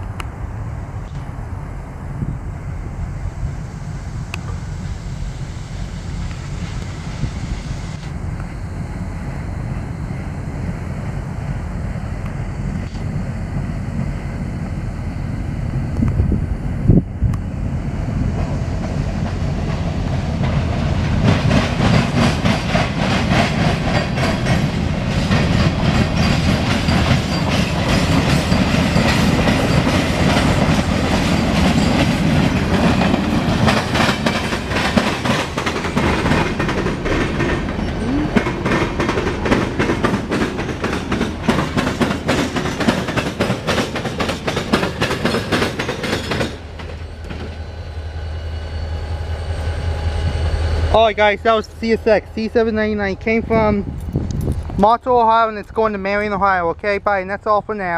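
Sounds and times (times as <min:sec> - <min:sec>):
low train rumble: 0:00.0 - 0:57.9
train wheels clicking over rail joints: 0:18.2 - 0:47.7.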